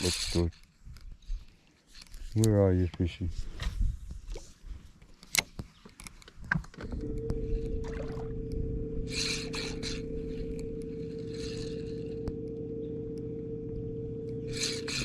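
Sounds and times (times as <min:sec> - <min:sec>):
boat motor humming: 0:06.9 - 0:15.0.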